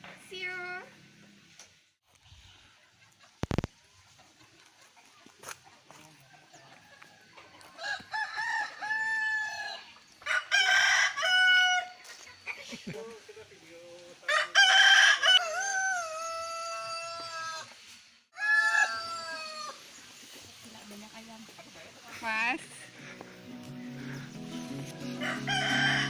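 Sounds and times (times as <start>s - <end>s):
roosters crowing: 6.1s - 12.2s, 14.2s - 19.9s, 22.9s - 26.0s.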